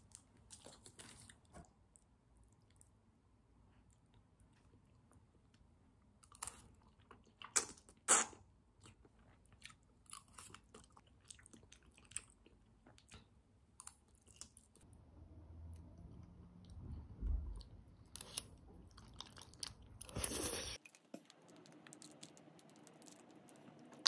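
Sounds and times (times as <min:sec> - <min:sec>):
person chewing noodles: 0:06.2 - 0:14.8, 0:18.2 - 0:24.0
wet mouth sounds: 0:07.4 - 0:08.4.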